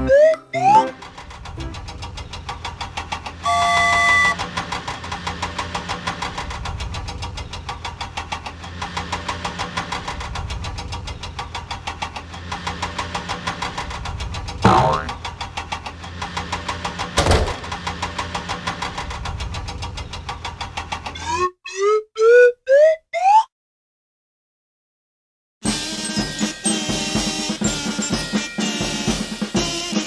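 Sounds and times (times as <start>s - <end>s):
vehicle engine chugging: 0.9s - 20.8s
vehicle horn: 3.4s - 4.4s.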